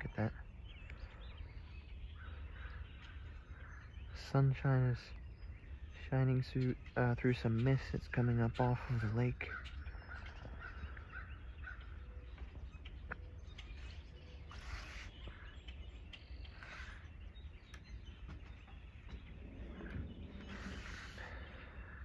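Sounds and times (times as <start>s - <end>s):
faint bird chirps: 0.0s - 22.0s
low rumble: 17.2s - 22.0s.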